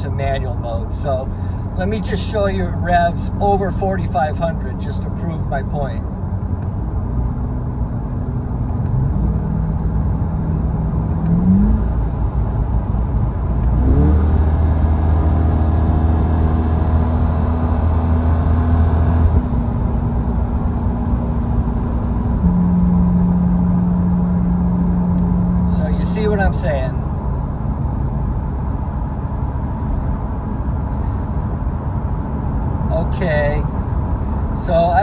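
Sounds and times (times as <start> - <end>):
car engine revving: 11.1 - 12.6, 13.6 - 27.3.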